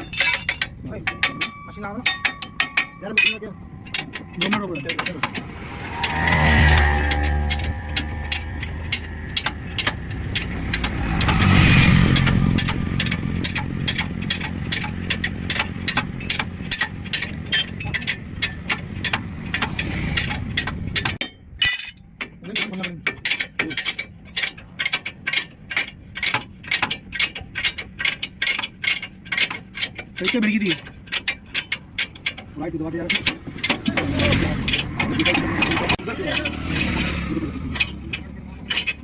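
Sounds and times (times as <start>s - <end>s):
engine running: 0.0s - 39.0s
steady mechanical clicking: 0.0s - 39.0s.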